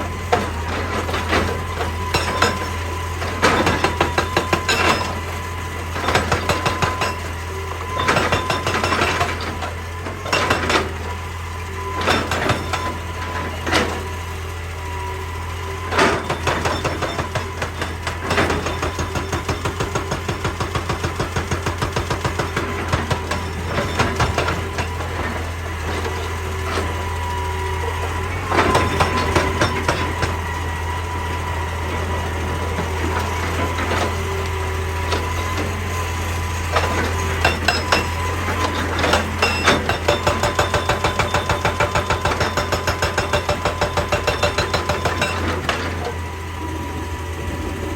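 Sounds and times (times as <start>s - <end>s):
excavator diesel engine rumbling: 0.0s - 47.9s
rock and metal knocking: 36.8s - 38.2s, 38.8s - 46.0s.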